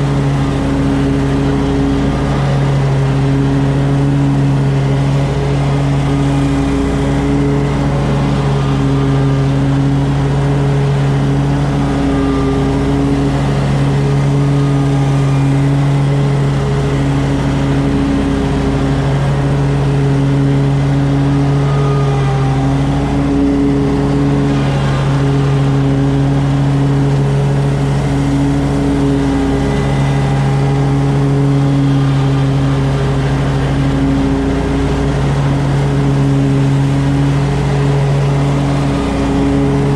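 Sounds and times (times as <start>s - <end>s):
lawn mower engine cutting grass: 0.0s - 39.9s.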